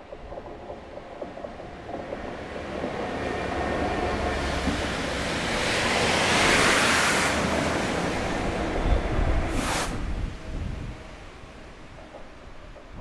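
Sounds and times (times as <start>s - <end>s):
train passing low rumble: 0.0s - 13.0s
rushing hiss: 5.4s - 10.5s.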